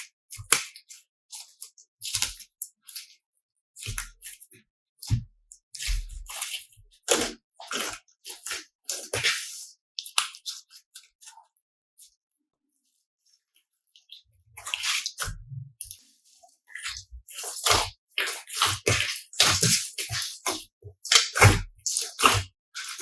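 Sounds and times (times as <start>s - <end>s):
slime squelching: 5.0s - 10.8s, 14.0s - 16.0s, 16.7s - 23.0s.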